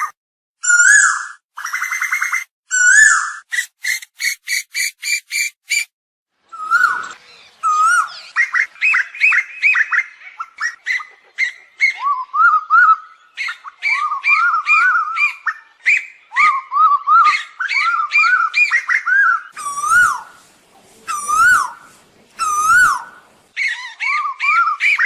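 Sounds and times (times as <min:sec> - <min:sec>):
koels calling: 0:06.6 - 0:25.0.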